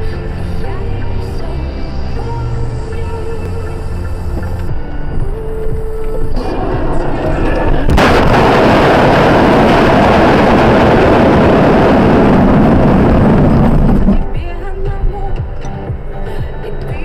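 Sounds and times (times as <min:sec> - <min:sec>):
loud continuous rumbling: 0:00.0 - 0:15.6
vehicle collision bang: 0:06.4 - 0:14.3.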